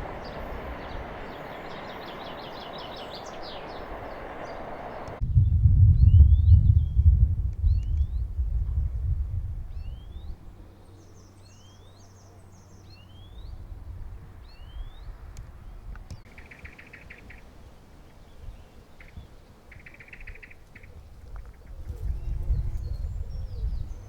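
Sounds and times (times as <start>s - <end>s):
bird rapid trills: 0.0s - 5.2s, 16.3s - 22.5s
bird rising chirps: 0.0s - 5.2s, 16.3s - 20.9s
bird twittering: 0.0s - 5.2s, 16.2s - 24.0s
low rumble: 0.0s - 10.8s.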